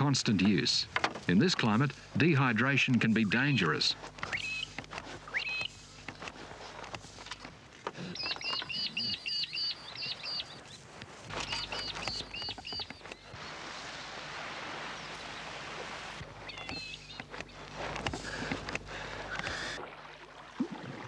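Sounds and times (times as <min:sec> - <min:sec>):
bird calling sharp high notes: 0:03.2 - 0:05.8.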